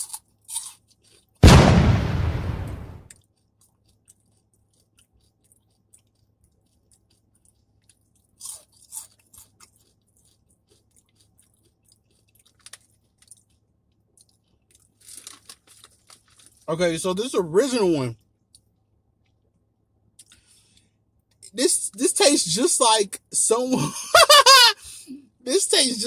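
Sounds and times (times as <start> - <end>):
chewing crispy chicken skin: 0.0 - 1.4, 3.1 - 16.7
loud burst: 1.4 - 3.1.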